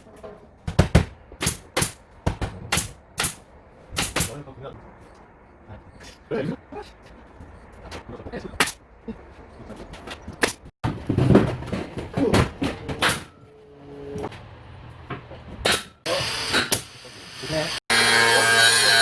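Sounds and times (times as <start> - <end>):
nail gun firing into wood: 4.0 - 4.4.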